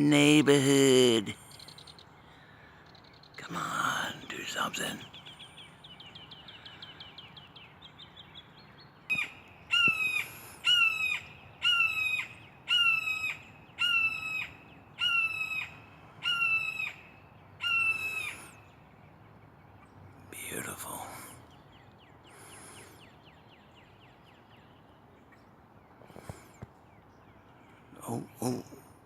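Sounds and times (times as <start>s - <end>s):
hawk calling: 9.1s - 18.7s.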